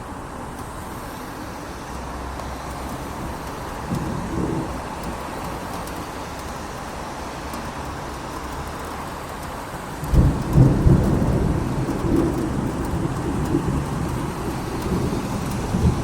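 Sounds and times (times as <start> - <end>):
steady rain falling: 0.0 - 16.0
thunder rumbling: 2.9 - 6.6, 9.9 - 16.0.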